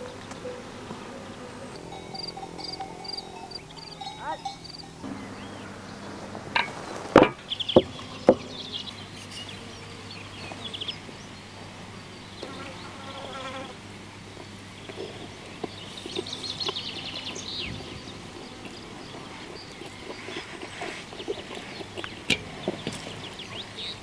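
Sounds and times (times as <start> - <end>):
high chirping insects or birds: 0.0 - 24.0
sharp knocks: 6.6 - 8.5.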